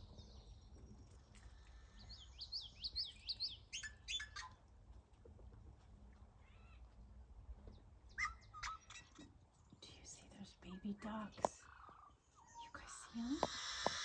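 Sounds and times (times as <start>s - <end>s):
birds calling and singing: 0.0s - 4.6s, 7.6s - 14.0s.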